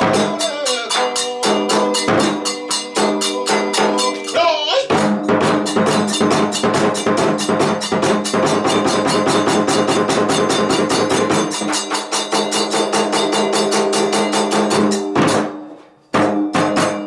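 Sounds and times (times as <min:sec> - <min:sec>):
steady held tones: 0:00.0 - 0:09.7
small hand cymbals: 0:00.0 - 0:15.5
drums: 0:00.0 - 0:17.0.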